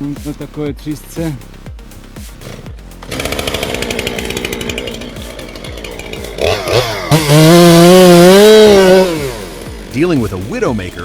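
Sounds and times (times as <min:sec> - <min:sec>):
chainsaw cutting and revving: 0:02.4 - 0:11.0.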